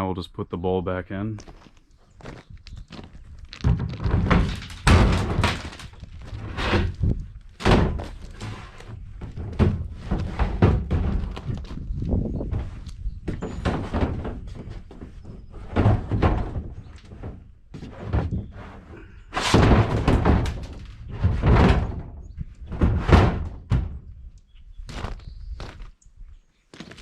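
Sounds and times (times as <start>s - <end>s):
hollow plastic thuds and knocks: 3.5s - 18.6s, 19.4s - 24.2s.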